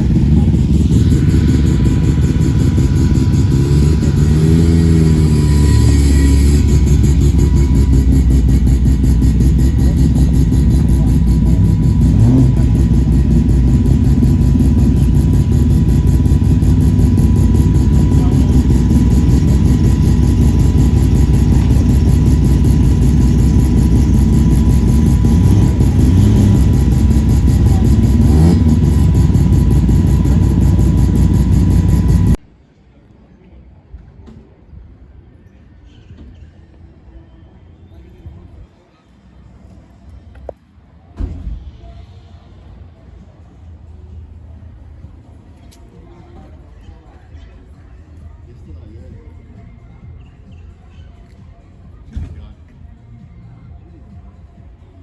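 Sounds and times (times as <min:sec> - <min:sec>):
car engines idling: 0:00.0 - 0:32.4
engine revving: 0:00.0 - 0:32.4.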